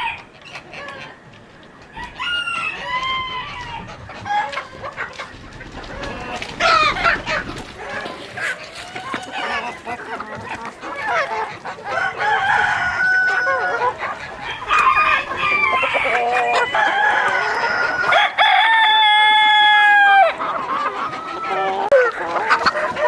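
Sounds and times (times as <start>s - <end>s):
chickens clucking: 0.0s - 23.0s
rooster crowing: 1.9s - 3.9s, 11.9s - 20.4s.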